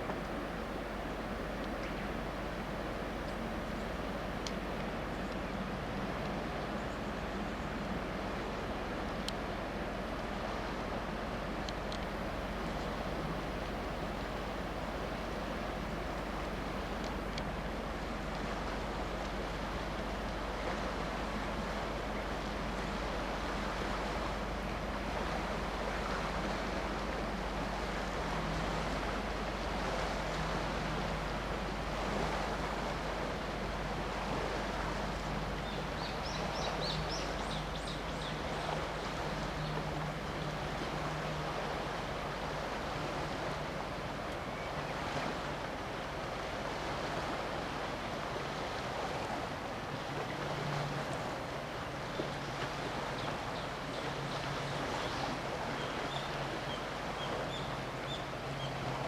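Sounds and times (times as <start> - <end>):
ship engine drone: 0.0 - 59.0
wind and water noise: 0.0 - 59.0.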